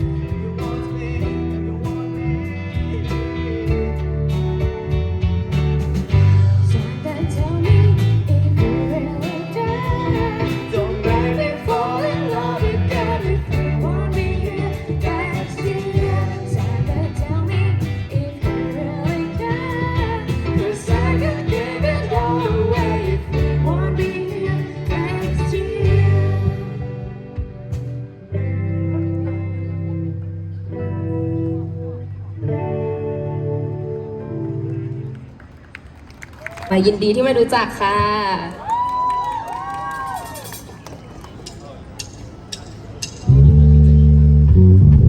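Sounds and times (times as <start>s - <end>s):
live pop-rock band playing: 0.0s - 35.3s.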